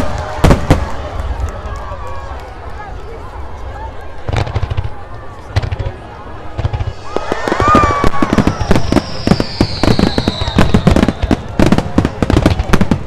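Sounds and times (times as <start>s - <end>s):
fireworks bangs and crackles: 0.0s - 13.0s
falling firework whistle: 6.7s - 12.0s.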